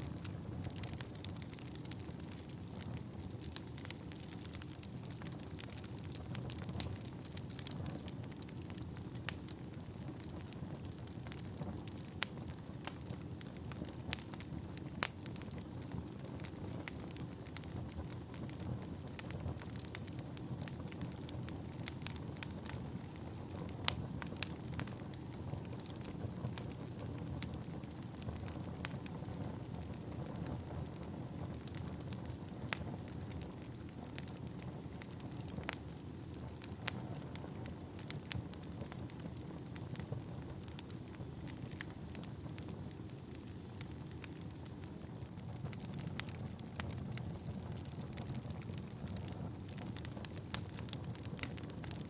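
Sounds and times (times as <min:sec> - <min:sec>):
fire rumbling: 0:00.0 - 0:52.0
logs crackling and popping: 0:00.0 - 0:52.0
faint high whistle: 0:39.5 - 0:45.4.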